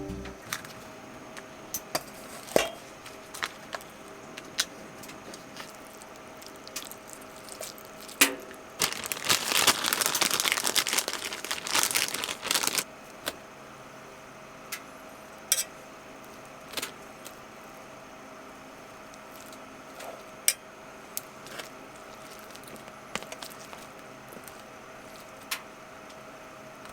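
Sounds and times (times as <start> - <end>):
paper crinkling and tearing: 8.8 - 12.9.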